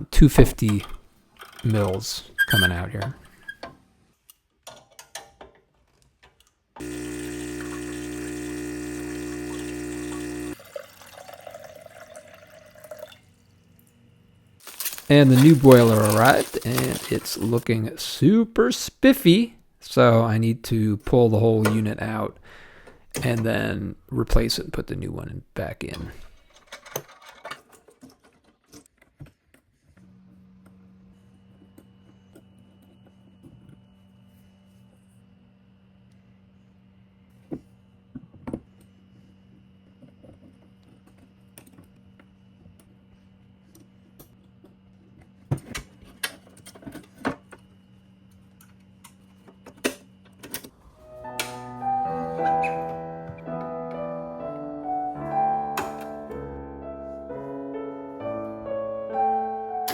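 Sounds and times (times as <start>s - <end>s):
espresso machine pump buzzing: 6.8s - 11.4s.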